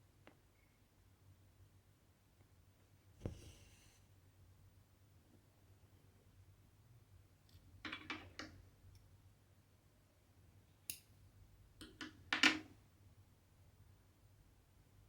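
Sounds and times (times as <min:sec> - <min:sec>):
needle and thread through fabric: 0:03.2 - 0:04.0.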